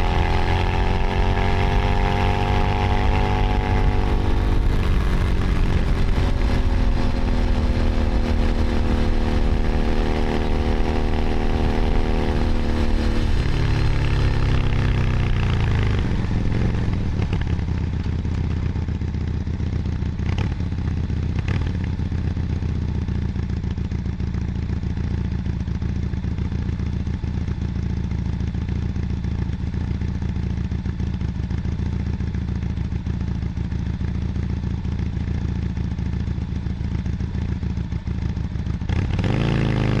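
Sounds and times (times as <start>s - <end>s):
motorcycle engine: 0.0s - 40.0s.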